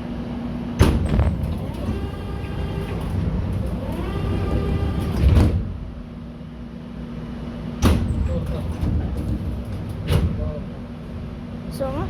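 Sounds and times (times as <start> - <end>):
traction motors whining: 1.1 - 5.4
train running rumble: 7.8 - 12.0.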